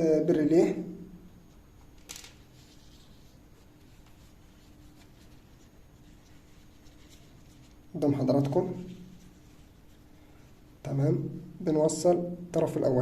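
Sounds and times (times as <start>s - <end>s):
faint steady hum: 0.0s - 13.0s
faint rustling: 1.4s - 10.9s.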